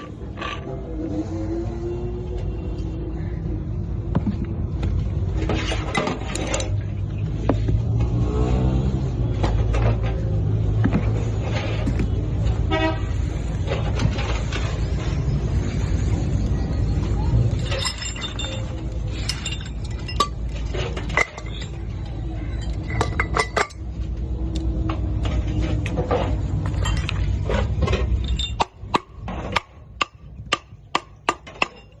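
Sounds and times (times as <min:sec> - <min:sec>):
metal tools clinking on metal: 0:06.0 - 0:06.8, 0:17.5 - 0:24.0, 0:25.6 - 0:28.8, 0:31.6 - 0:32.0.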